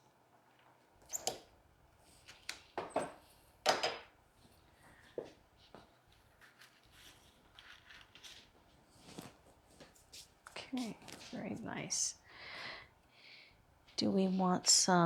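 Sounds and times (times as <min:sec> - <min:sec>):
flower stems rustling: 0:05.7 - 0:11.9.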